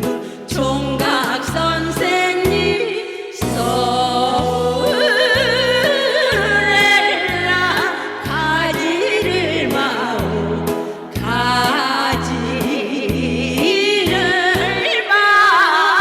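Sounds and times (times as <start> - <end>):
instrumental accompaniment: 0.0 - 15.0
women singing with vibrato: 0.0 - 16.0
steady bass line: 3.4 - 5.8, 6.4 - 14.8.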